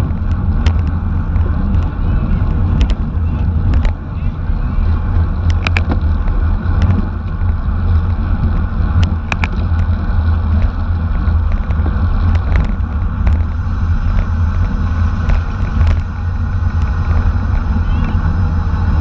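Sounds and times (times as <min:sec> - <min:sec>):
sharp clicks and ticks: 0:00.0 - 0:04.0, 0:05.2 - 0:18.2
wind buffeting microphone: 0:00.0 - 0:19.0.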